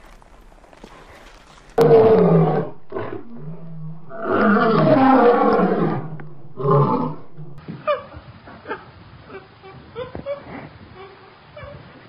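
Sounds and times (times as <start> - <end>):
lion roaring: 1.8 - 7.6.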